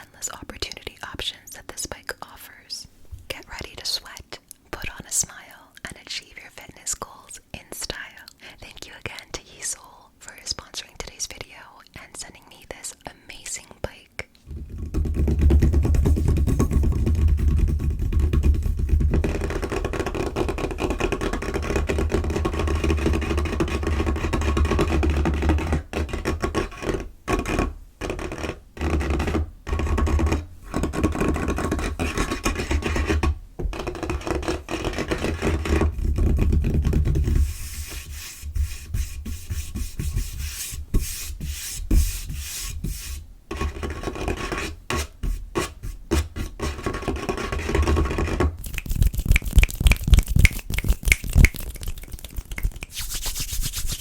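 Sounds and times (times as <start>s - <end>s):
fingernails tapping and scratching table: 14.5s - 42.4s.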